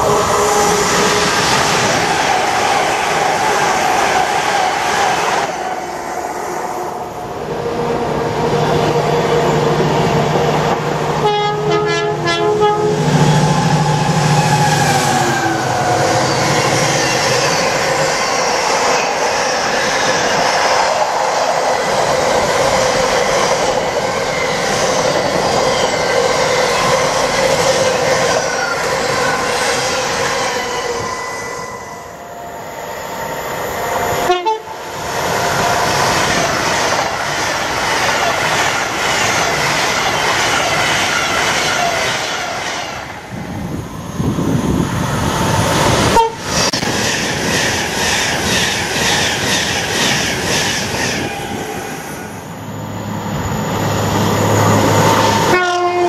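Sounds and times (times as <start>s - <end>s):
diesel locomotive passing: 0.0s - 56.0s
two-tone train horn blast: 11.2s - 14.8s, 34.2s - 34.8s, 46.1s - 46.5s, 55.2s - 56.0s.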